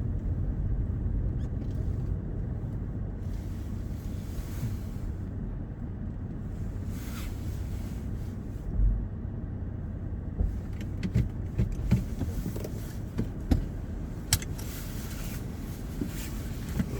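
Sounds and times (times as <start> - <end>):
car low rumble: 0.0 - 16.9
sharp clicks and knocks: 10.4 - 14.7.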